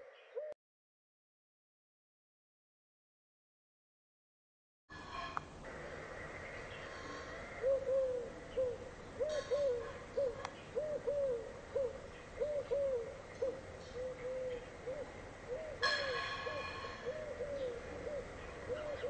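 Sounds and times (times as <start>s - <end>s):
bird hooting: 0.0s - 0.6s, 5.8s - 19.0s.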